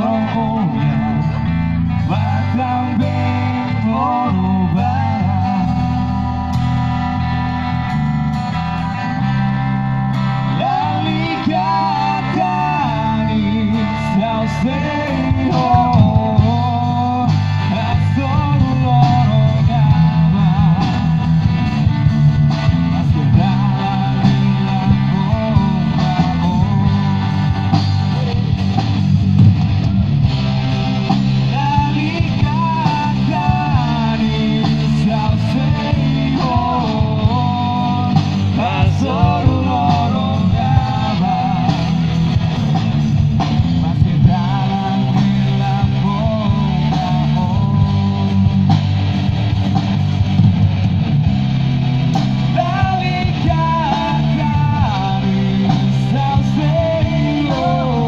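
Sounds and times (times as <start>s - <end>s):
rock band playing live: 0.0s - 58.0s.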